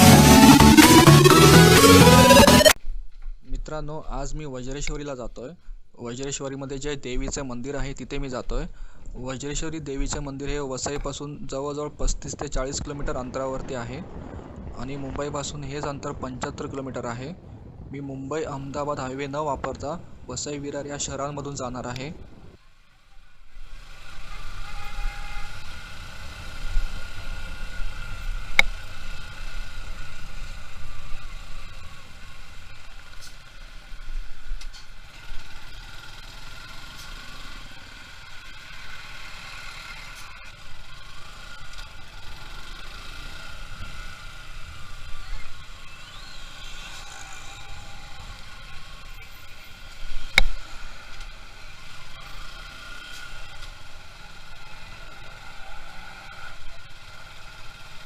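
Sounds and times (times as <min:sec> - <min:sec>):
motorcycle engine rumbling: 0:00.0 - 0:58.0
road and traffic noise: 0:06.4 - 0:58.0
wind rushing: 0:11.9 - 0:22.6.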